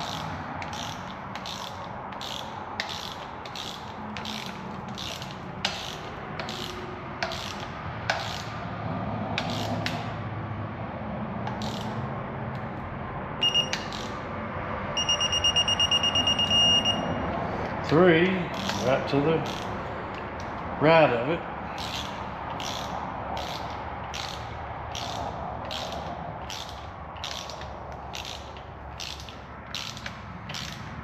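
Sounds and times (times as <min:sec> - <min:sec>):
ratchet wrench clicking: 0:00.0 - 0:08.6, 0:09.4 - 0:10.2, 0:11.4 - 0:12.7, 0:13.4 - 0:14.2, 0:18.5 - 0:20.7, 0:21.7 - 0:31.0
short high electronic beep: 0:13.4 - 0:13.8, 0:15.0 - 0:17.2
fast steady beeping: 0:13.4 - 0:13.9, 0:15.0 - 0:17.2.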